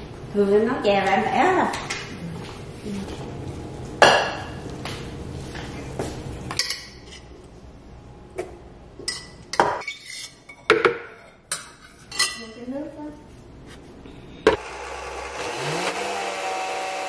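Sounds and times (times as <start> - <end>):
spoon scraping steel pot: 9.1 - 10.6.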